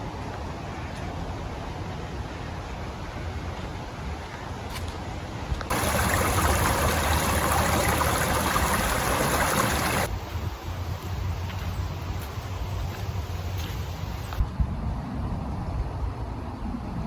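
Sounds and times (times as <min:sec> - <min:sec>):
running water rushing: 0:05.7 - 0:10.1.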